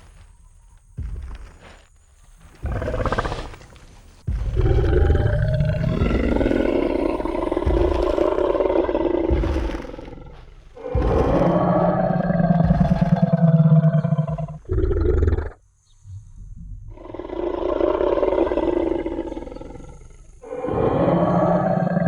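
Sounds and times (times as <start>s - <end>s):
deep dinosaur roar: 4.4s - 15.6s, 16.9s - 22.0s
dinosaur growl: 4.4s - 15.6s, 16.9s - 22.0s.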